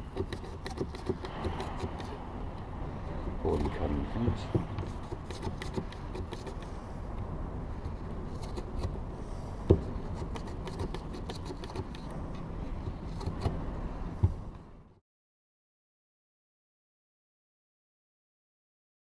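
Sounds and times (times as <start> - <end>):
blade cutting paper filter: 0.0 - 2.2
low background rumble: 0.0 - 15.0.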